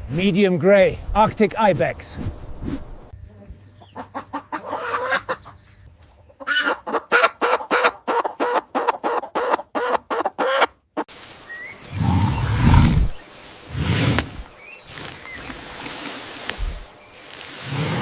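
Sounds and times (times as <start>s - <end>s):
animal clucking calls: 3.3s - 10.8s.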